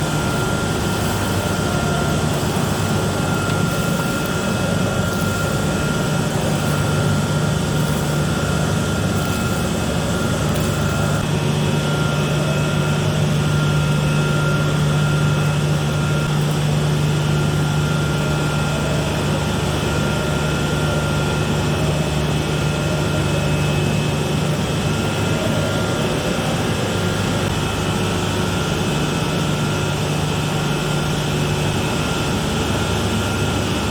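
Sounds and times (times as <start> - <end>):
thin high whine: 0.0 - 21.4
machinery low hum: 0.0 - 33.9.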